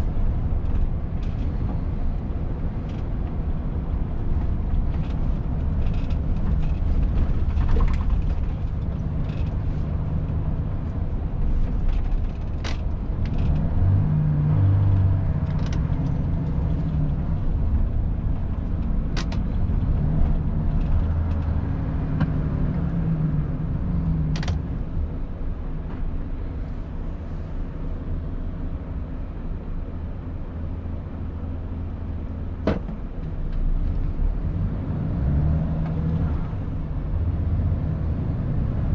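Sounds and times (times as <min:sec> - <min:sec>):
sharp clicks and creaks: 0:00.2 - 0:03.5, 0:04.1 - 0:11.0, 0:11.6 - 0:14.0, 0:14.9 - 0:23.0, 0:23.9 - 0:24.8.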